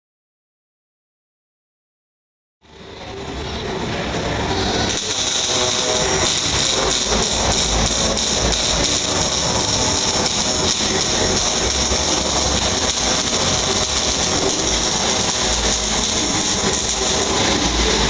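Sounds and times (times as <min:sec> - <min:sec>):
welding arc crackling buzz: 0:04.4 - 0:18.0.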